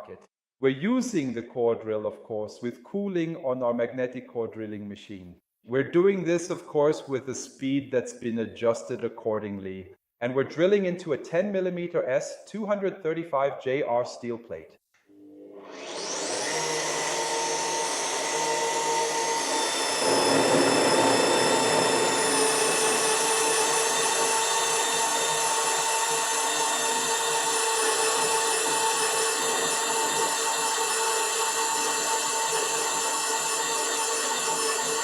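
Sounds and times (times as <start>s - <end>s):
core drill cutting steel: 15.4s - 35.0s.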